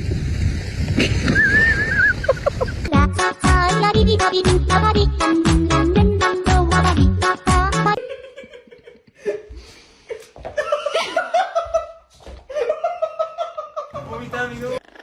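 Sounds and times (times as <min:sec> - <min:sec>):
person laughing: 0:01.0 - 0:02.9, 0:08.0 - 0:14.3.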